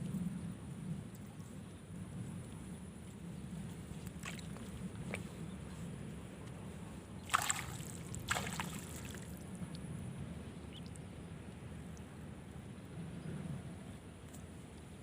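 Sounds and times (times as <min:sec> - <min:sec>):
steady low rumble: 0:00.0 - 0:15.0
splashes in water: 0:04.2 - 0:05.2, 0:07.2 - 0:09.5.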